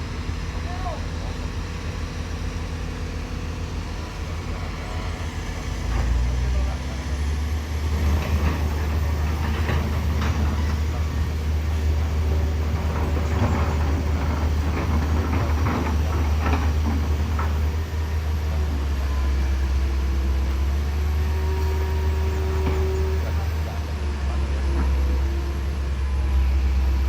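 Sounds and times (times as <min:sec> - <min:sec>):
heavy vehicle engine rumbling: 0:00.0 - 0:27.0
knocks and clatter: 0:08.0 - 0:11.2, 0:12.0 - 0:17.8.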